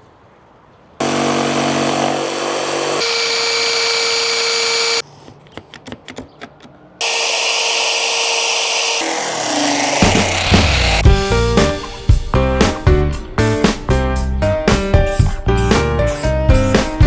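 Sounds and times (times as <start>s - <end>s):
power tool whining on wood: 1.0s - 5.0s, 7.0s - 11.0s.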